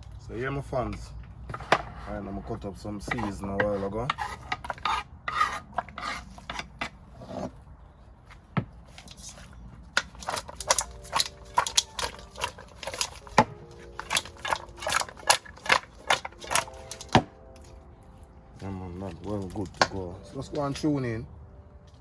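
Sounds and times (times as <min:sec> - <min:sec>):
knife chopping vegetables: 0:10.0 - 0:17.3.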